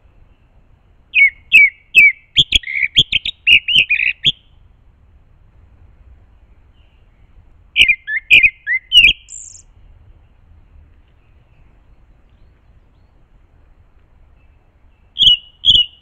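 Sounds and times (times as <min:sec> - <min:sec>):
bird chirping: 0:00.0 - 0:04.6, 0:06.2 - 0:13.5, 0:14.2 - 0:16.0.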